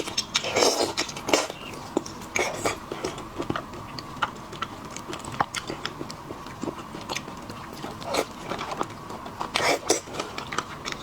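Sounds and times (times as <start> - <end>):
chewing seafood: 0.0 - 11.0.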